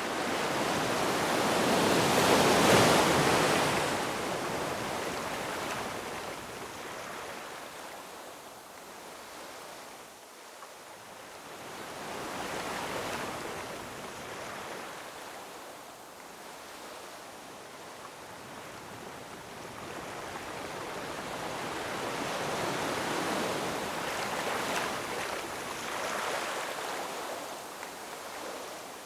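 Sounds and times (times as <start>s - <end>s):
ocean waves breaking on rocks: 0.2s - 6.1s.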